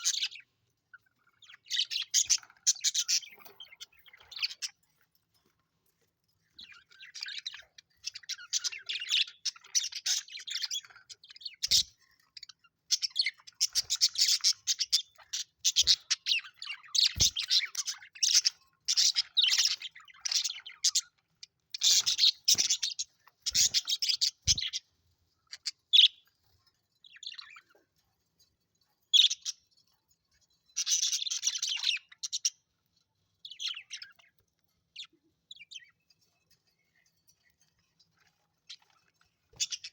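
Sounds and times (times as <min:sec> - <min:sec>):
budgerigars chattering: 0:11.6 - 0:11.9, 0:13.0 - 0:21.0, 0:21.8 - 0:24.8.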